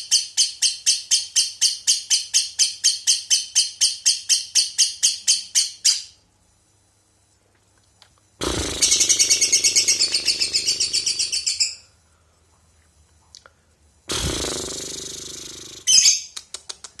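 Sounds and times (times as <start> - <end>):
lovebird stuttering trill: 8.4 - 11.8, 14.1 - 16.4.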